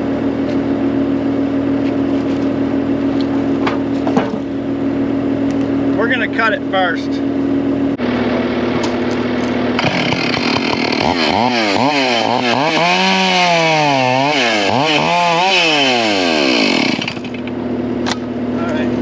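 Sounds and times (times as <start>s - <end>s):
engine hum: 0.0s - 19.0s
chainsaw cutting wood: 8.6s - 18.3s.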